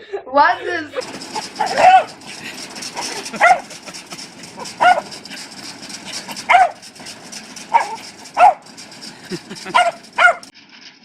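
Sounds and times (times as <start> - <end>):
dog barking: 1.4 - 2.2, 3.3 - 3.8, 4.6 - 5.1, 6.4 - 6.8, 7.7 - 8.7, 9.7 - 10.5.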